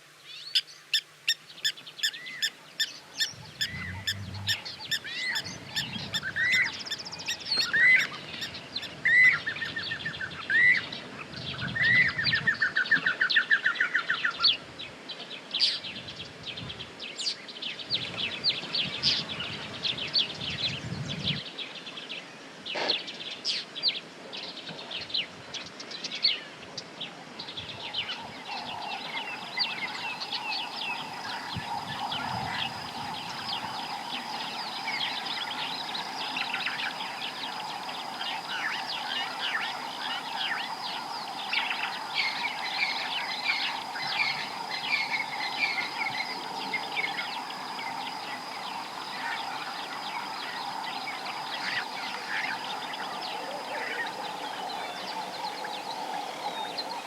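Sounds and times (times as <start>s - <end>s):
small birds chirping: 0.2s - 10.0s, 27.4s - 57.0s
high-pitched insect whine: 3.2s - 8.6s, 28.1s - 57.0s
low continuous drone: 3.3s - 6.1s.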